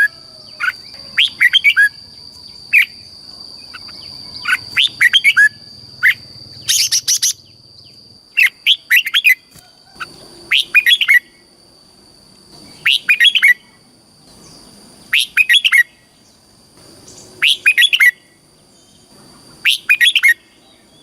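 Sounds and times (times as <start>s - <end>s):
bird singing whistled notes: 0.0s - 11.5s, 12.6s - 13.8s, 14.4s - 16.4s, 17.0s - 21.0s.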